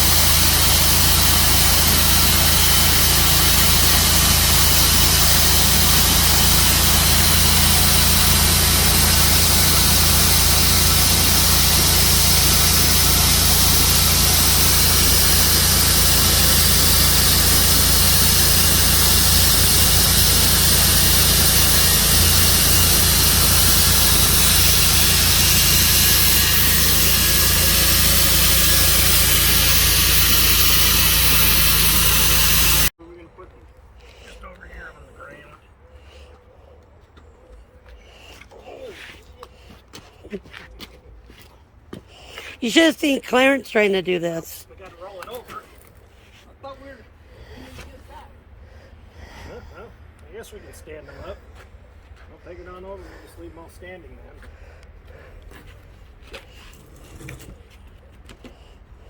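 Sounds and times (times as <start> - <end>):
engine running steadily: 0.0 - 32.9.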